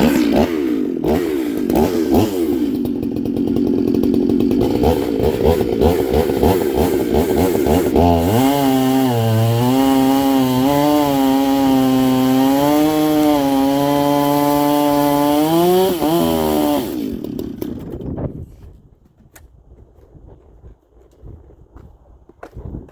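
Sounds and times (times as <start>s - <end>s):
chainsaw revving: 0.0s - 18.2s.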